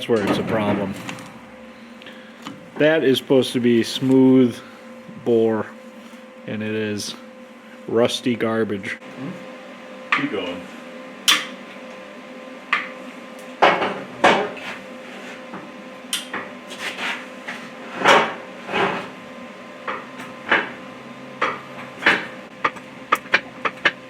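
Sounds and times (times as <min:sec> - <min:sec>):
faint hum: 0:00.0 - 0:13.5.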